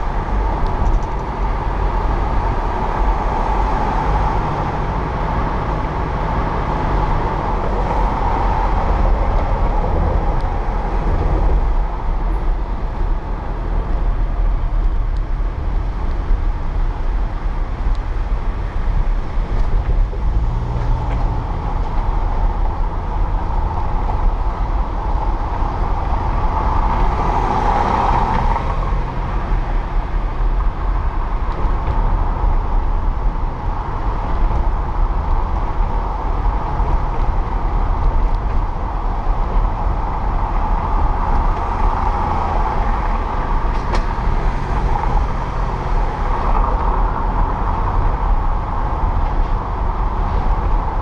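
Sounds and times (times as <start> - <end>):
car engine and road noise: 0.0 - 51.0
passing traffic: 0.0 - 51.0.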